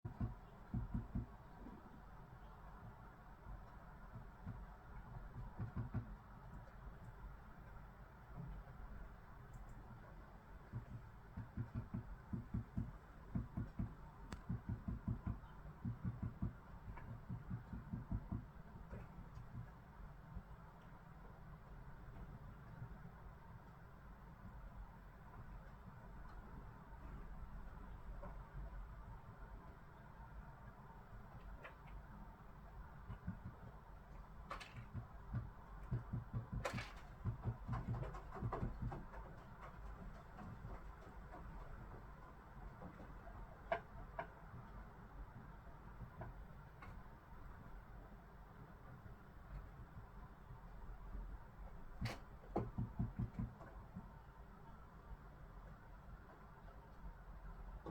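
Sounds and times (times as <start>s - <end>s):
woodpecker pecking: 34.4s - 42.0s.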